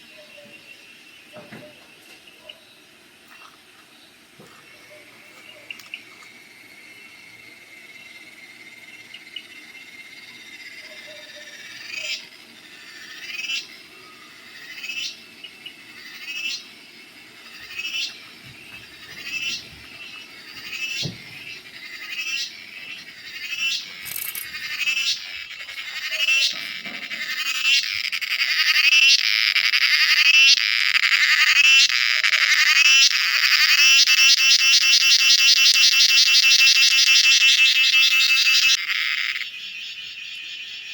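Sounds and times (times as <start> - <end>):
cicada buzzing: 4.0 - 40.9.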